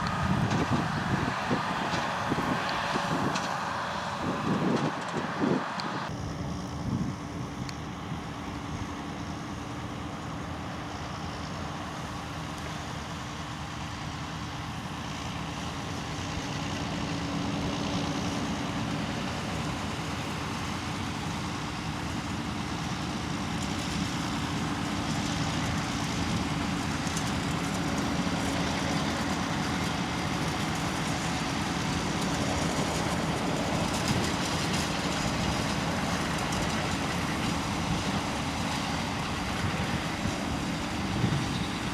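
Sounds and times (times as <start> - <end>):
tractor engine humming: 0.0 - 41.9.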